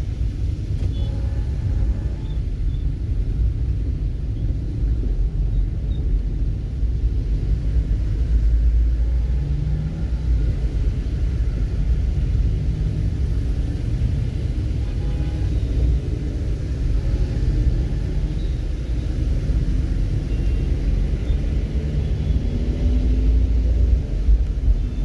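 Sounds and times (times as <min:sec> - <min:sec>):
steady low rumble: 0:20.8 - 0:25.0.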